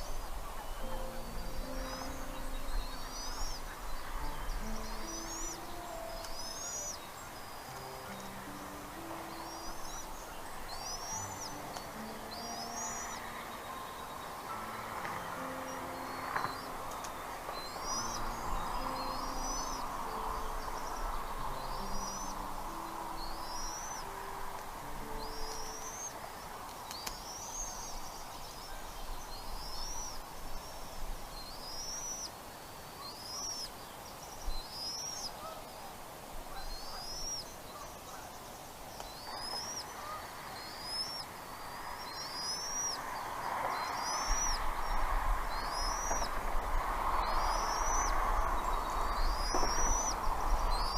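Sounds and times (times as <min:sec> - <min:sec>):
outdoor background noise: 0:00.0 - 0:50.9
bird calling high note: 0:00.6 - 0:26.7.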